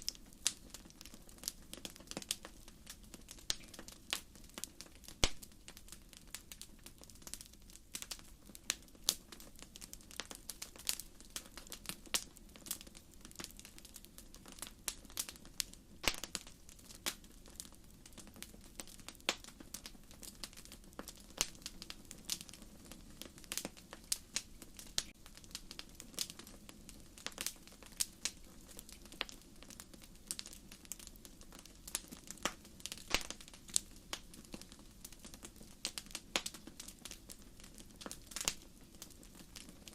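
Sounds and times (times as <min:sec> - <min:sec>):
logs popping and snapping: 0:16.0 - 0:16.4, 0:33.1 - 0:33.4.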